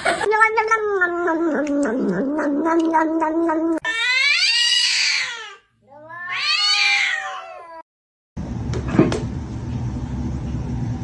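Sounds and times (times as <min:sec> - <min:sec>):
cat meowing: 0:00.4 - 0:07.8
cat yowling: 0:00.5 - 0:07.8.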